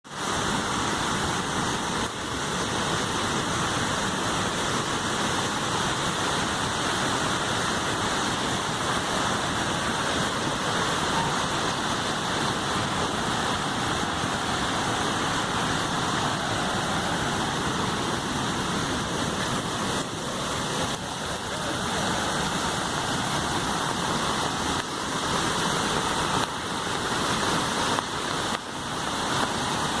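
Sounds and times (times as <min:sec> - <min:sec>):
floodwater rushing: 0:00.0 - 0:30.0.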